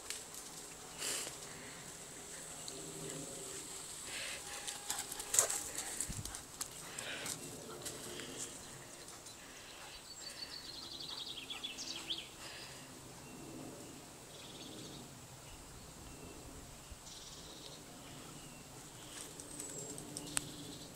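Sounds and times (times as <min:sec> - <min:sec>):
woodland background noise: 0:00.0 - 0:20.9
songbird trill: 0:08.3 - 0:20.9.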